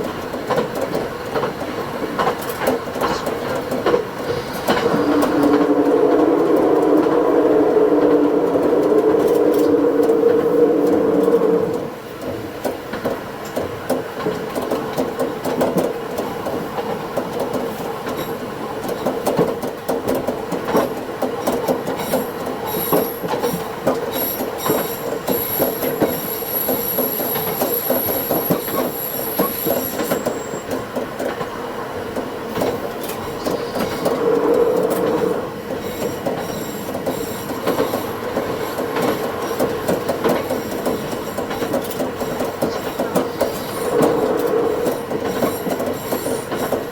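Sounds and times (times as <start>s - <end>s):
railcar wheels clicking over rails: 0.0s - 46.9s
high wheel squeal on rail: 2.9s - 12.0s, 21.8s - 31.2s, 32.8s - 46.9s.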